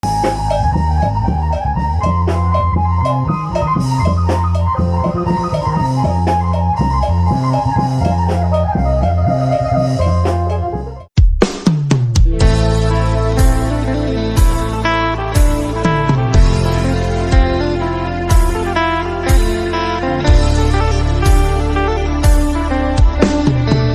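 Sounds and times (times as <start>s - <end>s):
drums at steady beat: 0.0s - 3.0s, 11.1s - 19.7s, 20.3s - 23.9s
bass line: 0.0s - 23.9s.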